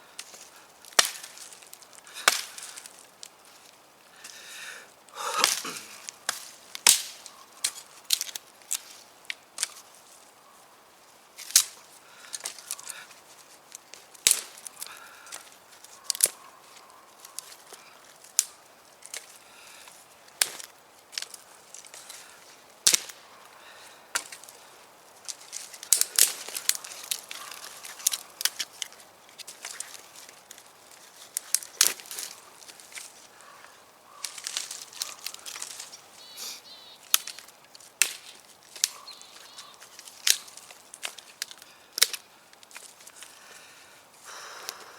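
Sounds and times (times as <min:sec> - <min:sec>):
wood cracking and snapping: 0:00.2 - 0:03.3, 0:05.4 - 0:09.8, 0:13.7 - 0:15.5, 0:20.3 - 0:23.2, 0:25.2 - 0:33.1, 0:34.1 - 0:35.9, 0:37.1 - 0:43.3.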